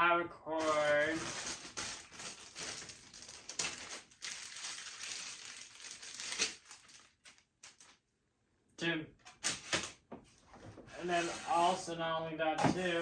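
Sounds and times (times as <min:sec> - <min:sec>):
packaging rustling and crinkling: 0:00.6 - 0:08.0.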